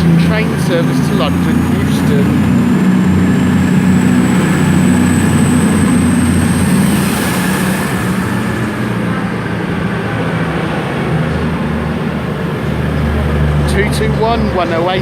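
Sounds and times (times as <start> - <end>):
faint high whine: 0.0 - 10.4
train diesel engines: 0.0 - 15.0.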